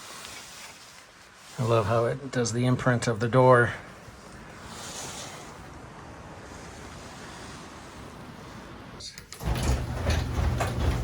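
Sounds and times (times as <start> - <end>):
steady hiss: 0.0 - 9.2
loud rumbling with rattles: 9.4 - 11.0.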